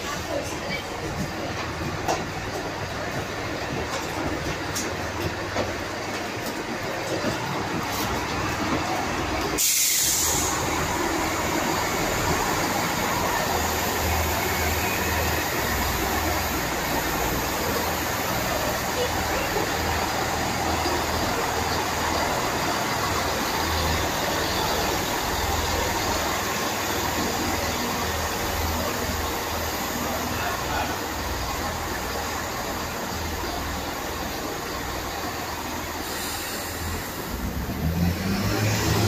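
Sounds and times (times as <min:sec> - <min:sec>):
diesel train running past: 0:00.0 - 0:39.0
short burst of hiss: 0:09.6 - 0:10.7.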